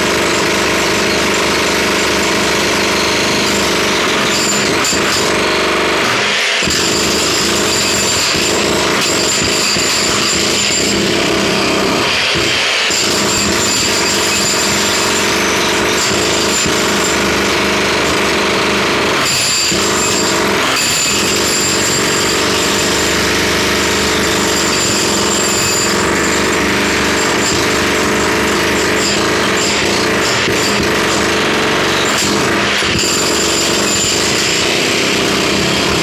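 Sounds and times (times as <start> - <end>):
jackhammer hammering: 0.0 - 36.0.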